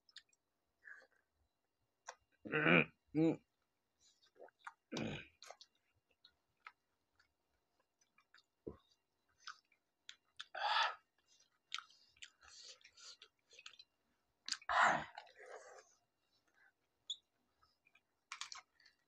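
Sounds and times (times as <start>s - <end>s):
chewing: 4.1s - 10.5s, 11.1s - 19.0s.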